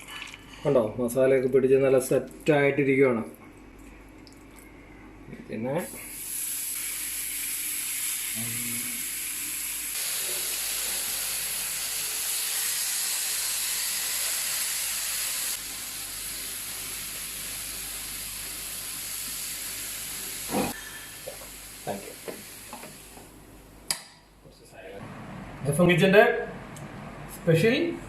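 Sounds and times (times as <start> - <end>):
chicken sizzling in a pan: 6.1 - 22.8.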